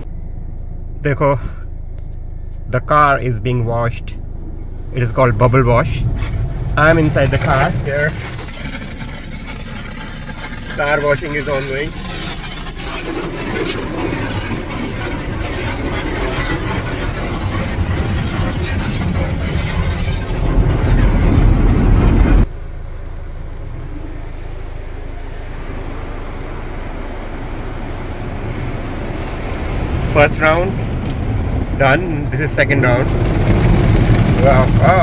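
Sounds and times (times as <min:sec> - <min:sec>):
steady low hum: 0:00.0 - 0:35.0
water spray beating on car body: 0:06.1 - 0:20.8, 0:22.5 - 0:35.0.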